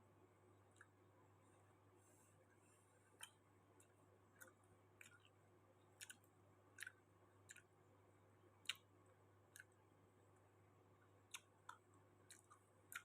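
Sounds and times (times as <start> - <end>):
wet mouth clicks: 11.3 - 13.0.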